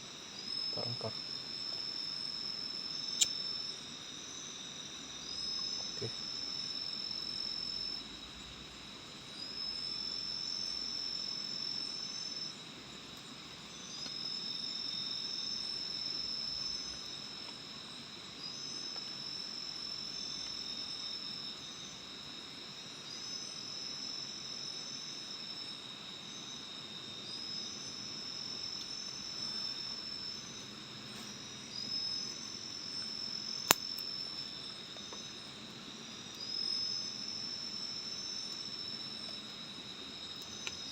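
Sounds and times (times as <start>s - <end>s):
insects droning: 0.0s - 40.9s
insect high even call: 0.5s - 1.3s, 2.9s - 3.8s.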